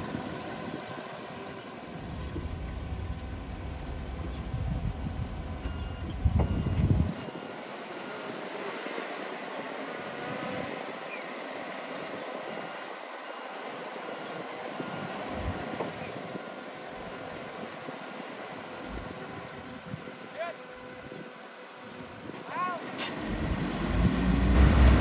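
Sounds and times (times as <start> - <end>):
earthmoving machinery engine: 0.0 - 25.0
reversing alarm beeping: 5.6 - 21.1.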